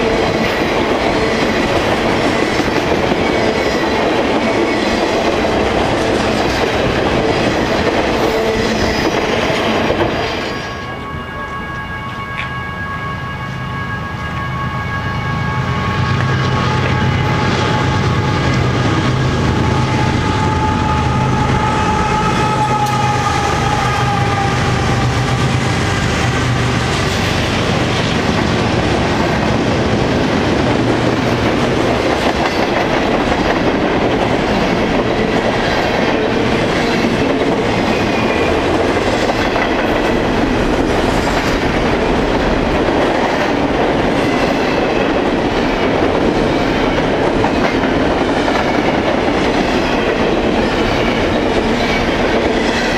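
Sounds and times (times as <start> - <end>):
train cars clickety-clack on rails: 0.0 - 12.6, 15.8 - 52.9
diesel locomotives droning: 0.0 - 52.9.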